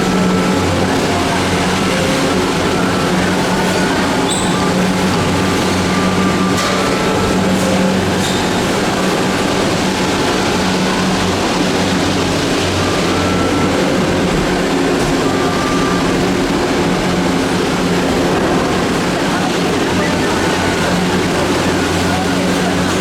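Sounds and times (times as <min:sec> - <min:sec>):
faint high-pitched squeals: 0:00.0 - 0:17.7.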